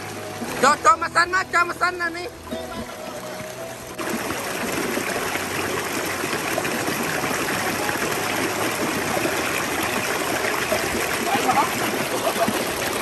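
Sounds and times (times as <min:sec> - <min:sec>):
stream running over stones: 0:00.0 - 0:13.0.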